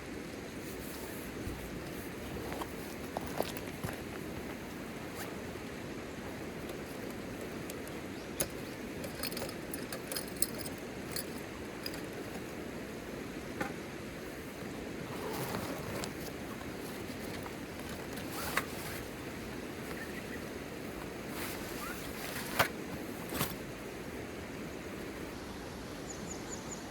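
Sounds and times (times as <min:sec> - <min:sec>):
sharp clicks and clinks: 0:07.0 - 0:12.4.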